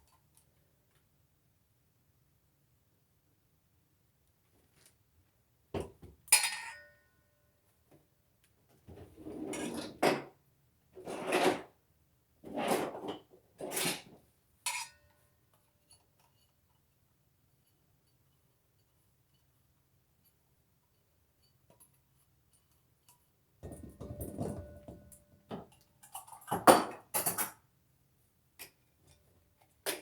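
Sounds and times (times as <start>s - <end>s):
utensil clinking against a bowl: 23.6s - 25.4s.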